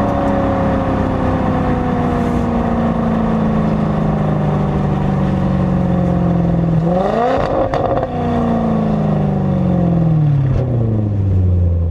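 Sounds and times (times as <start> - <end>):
car engine revving: 0.0 - 11.9
exhaust crackle: 0.0 - 11.9.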